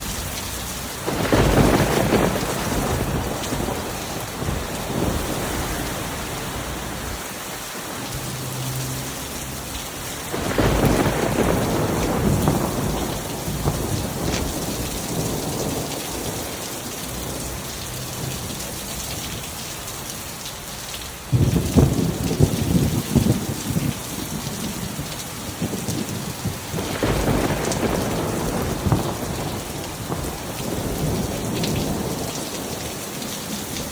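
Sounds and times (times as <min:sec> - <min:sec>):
heavy rain: 0:00.0 - 0:33.9
rolling thunder: 0:01.0 - 0:07.3, 0:10.1 - 0:17.5, 0:21.3 - 0:32.8.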